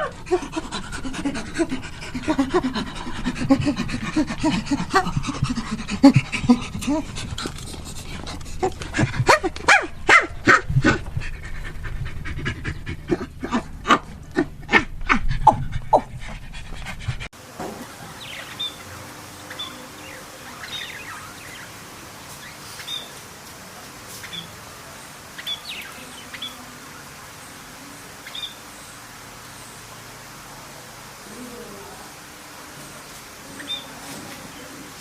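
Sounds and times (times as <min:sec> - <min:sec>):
dog yapping: 0:00.0 - 0:00.5, 0:08.3 - 0:11.1
steady hiss: 0:16.4 - 0:35.0.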